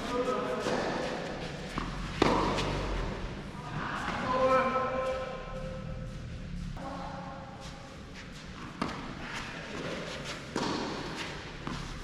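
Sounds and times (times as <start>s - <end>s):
tennis ball hits echoing: 1.8s - 2.9s, 10.5s - 11.1s.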